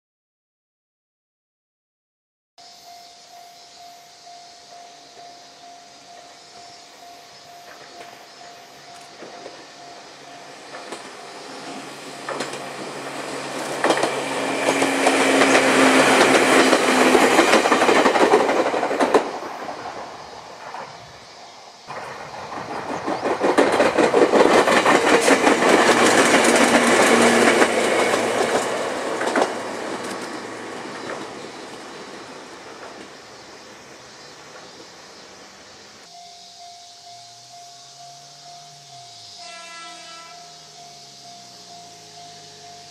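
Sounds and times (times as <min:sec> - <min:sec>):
electric train passing: 0:02.6 - 0:42.9
wheels clacking over rail joints: 0:07.5 - 0:21.2, 0:21.8 - 0:35.4.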